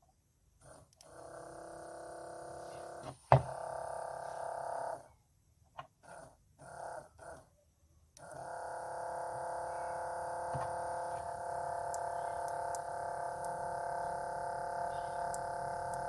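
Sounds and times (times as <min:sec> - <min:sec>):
steady electric hum: 0:08.4 - 0:16.0
steady whine: 0:09.3 - 0:16.0.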